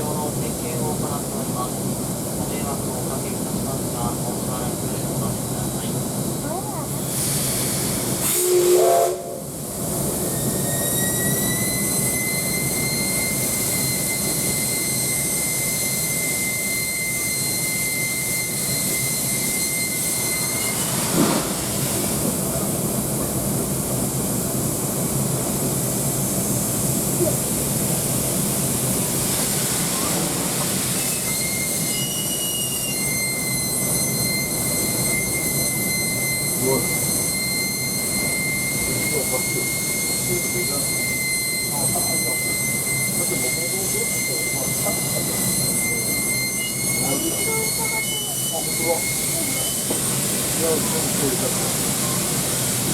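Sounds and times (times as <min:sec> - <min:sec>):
steam hissing: 0:00.0 - 0:52.9
high metallic whine: 0:31.0 - 0:50.0.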